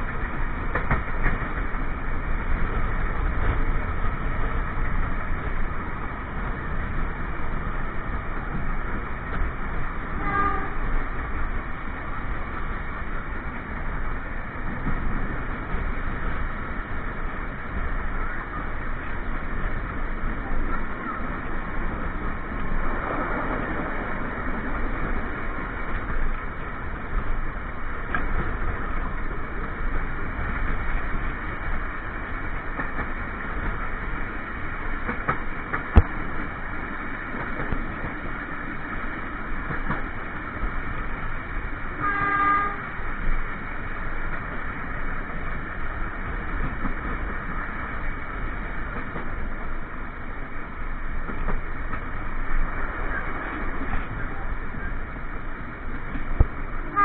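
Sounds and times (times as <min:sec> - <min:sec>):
train wheels on rails: 0:00.0 - 0:57.0
train horn blast: 0:10.2 - 0:10.9, 0:42.0 - 0:42.9.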